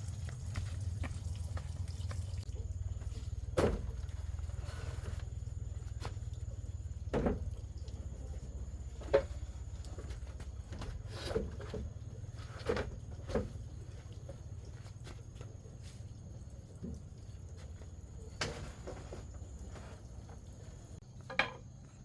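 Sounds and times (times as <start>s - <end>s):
knocks and clatters: 21.2s - 21.7s.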